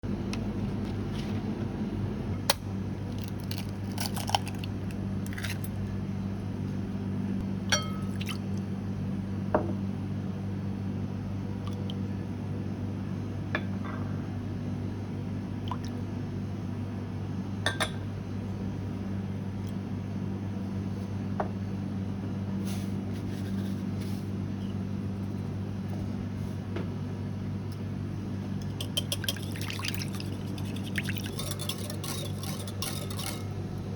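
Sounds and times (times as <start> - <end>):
glass and dishes clinking: 7.7 - 8.2.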